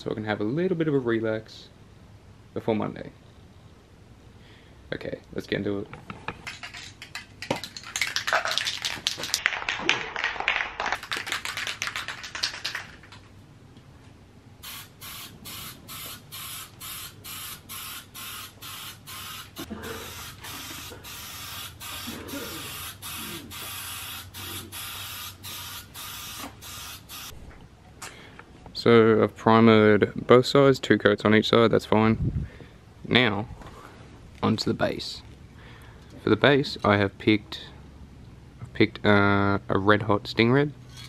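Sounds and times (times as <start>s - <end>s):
aerosol can rattling: 6.4s - 9.4s
aerosol can spraying: 14.6s - 27.3s.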